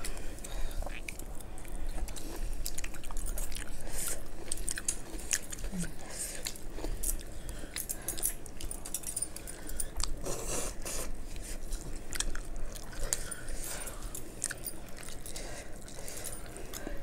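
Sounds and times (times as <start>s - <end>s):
chewing and lip-smacking: 0.0s - 17.0s.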